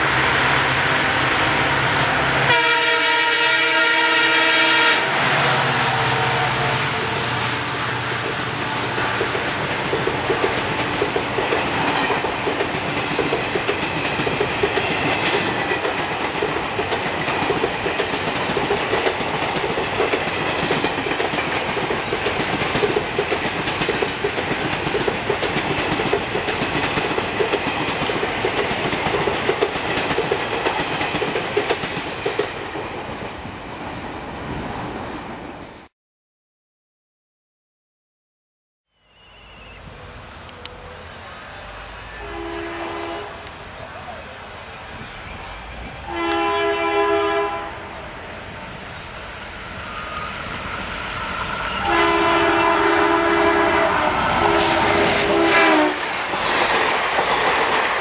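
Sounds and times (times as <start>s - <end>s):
train wheels clacking over rail joints: 8.1s - 33.0s, 54.4s - 58.0s.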